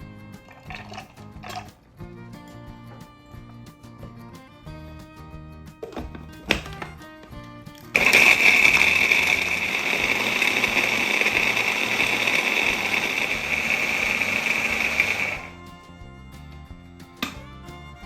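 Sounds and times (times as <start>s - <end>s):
food processor whirring: 0.5s - 1.8s, 7.9s - 15.6s.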